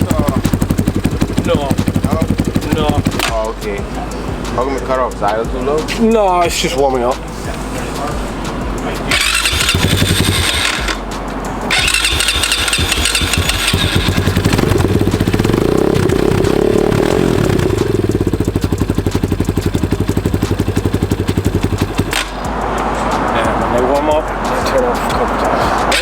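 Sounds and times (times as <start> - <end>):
dirt bike engine cranking: 0.0 - 3.8, 9.0 - 23.4, 25.8 - 26.0
dirt bike engine idling: 0.0 - 26.0.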